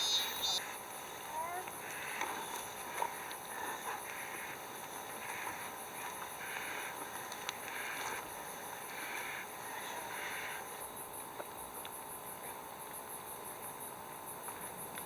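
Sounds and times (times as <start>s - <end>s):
insect buzzing call: 0.0s - 11.7s
insects trilling: 0.0s - 15.0s.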